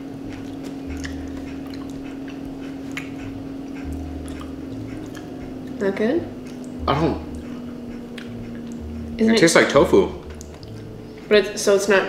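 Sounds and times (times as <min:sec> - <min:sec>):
person chewing soft food: 0:00.0 - 0:11.3
steady low hum: 0:00.0 - 0:12.0.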